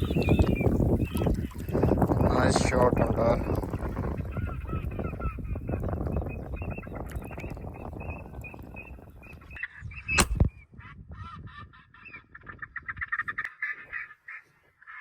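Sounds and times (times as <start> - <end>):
ducks honking and quacking: 0.0 - 10.1, 10.7 - 15.0
shotgun shot: 10.2 - 10.5.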